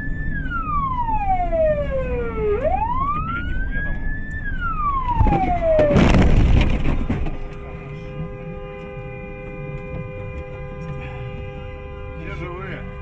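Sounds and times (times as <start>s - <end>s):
siren wailing: 0.0s - 6.6s.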